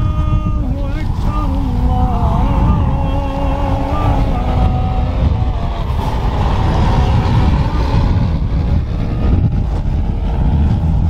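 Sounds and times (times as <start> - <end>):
man chanting: 0.0 - 5.4
wind buffeting microphone: 0.0 - 11.0.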